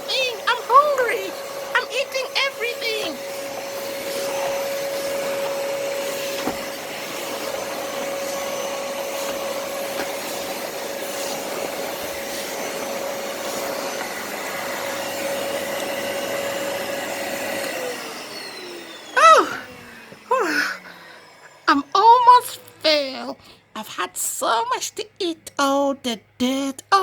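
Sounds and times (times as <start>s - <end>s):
vacuum motor winding down: 0.0s - 23.7s
vacuum cleaner running: 0.0s - 24.7s.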